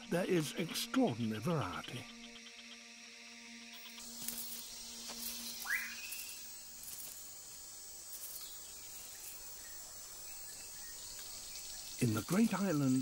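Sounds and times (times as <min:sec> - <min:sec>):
high-pitched insect chorus: 0:00.0 - 0:13.0
rising whistled bird call: 0:05.6 - 0:06.5.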